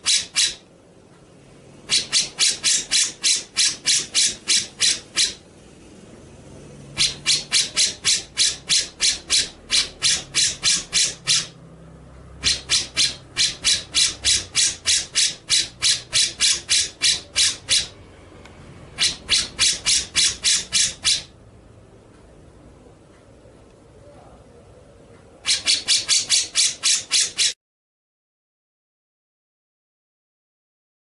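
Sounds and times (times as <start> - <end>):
songbird harsh scratchy notes: 1.8 - 5.7, 6.9 - 11.6, 12.4 - 18.0, 19.0 - 21.3.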